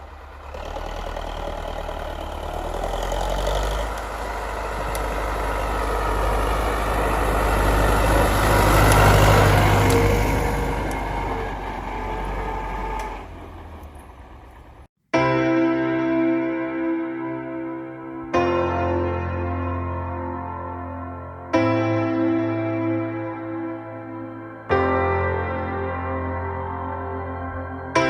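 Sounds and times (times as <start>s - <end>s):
tractor diesel engine running: 0.0s - 14.9s.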